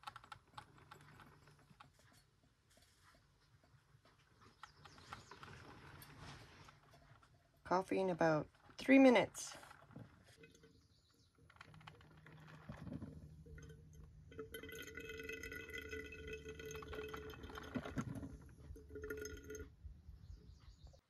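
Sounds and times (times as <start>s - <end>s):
coffee maker hum: 11.6s - 19.8s.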